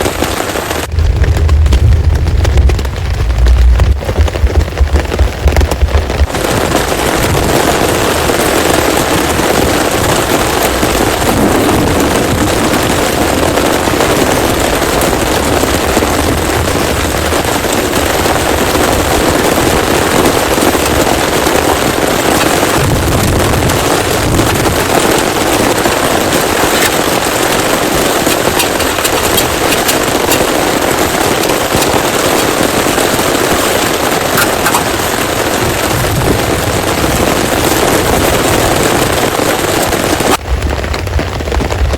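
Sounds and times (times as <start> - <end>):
heavy rain pouring: 0.0 - 41.9
low thunder rumble: 0.8 - 41.9.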